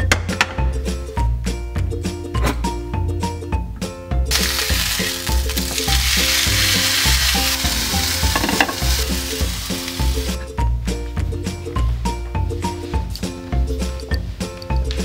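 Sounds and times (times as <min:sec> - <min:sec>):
background music with beat: 0:00.0 - 0:15.0
chicken sizzling in oil: 0:04.3 - 0:10.4.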